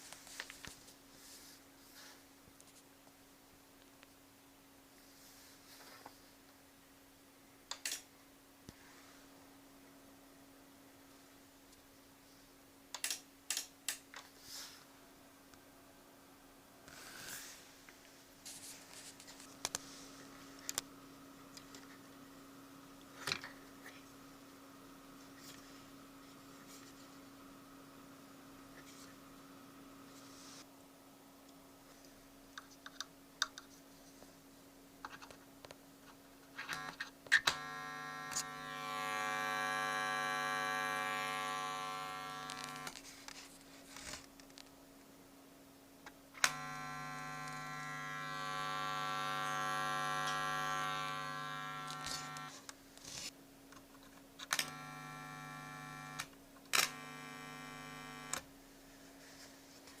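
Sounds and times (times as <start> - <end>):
faint steady hum: 0.0 - 60.0
loud electrical buzz: 36.7 - 43.0, 46.4 - 52.6, 54.5 - 58.5.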